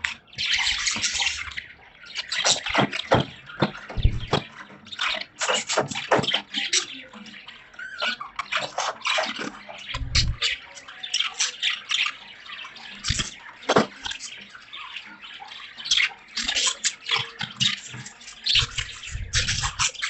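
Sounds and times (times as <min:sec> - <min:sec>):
budgerigars chirping: 0:00.0 - 0:20.0
low bumps: 0:03.6 - 0:04.4, 0:10.0 - 0:10.4.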